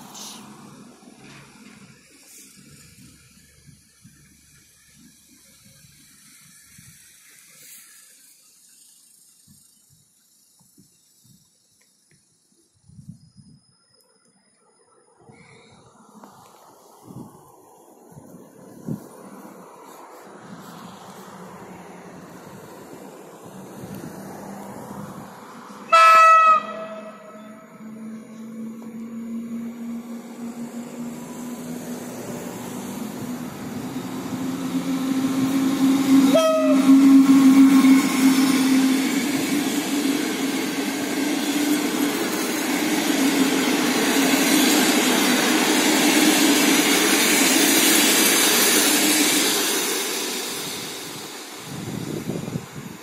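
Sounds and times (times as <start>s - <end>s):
train wheels on rails: 0.0s - 13.8s, 15.7s - 53.0s
electric locomotive humming: 0.0s - 53.0s
train horn blast: 25.8s - 29.2s, 34.6s - 39.2s.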